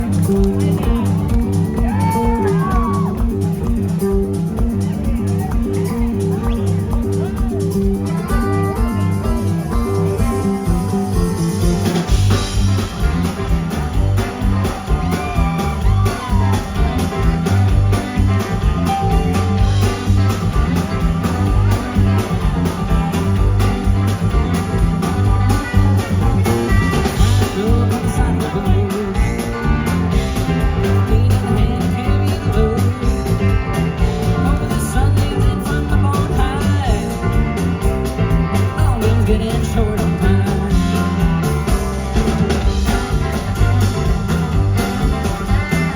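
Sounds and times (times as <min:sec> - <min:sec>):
country-rock band playing: 0:00.0 - 0:45.9
electric guitar: 0:00.0 - 0:45.9.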